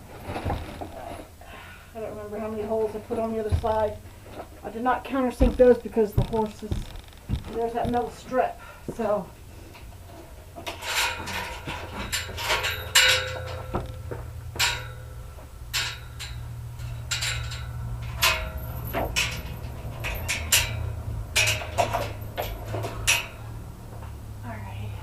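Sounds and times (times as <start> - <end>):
steady low hum: 0.0 - 25.0
tools knocking and clinking: 5.4 - 8.2, 10.6 - 24.1.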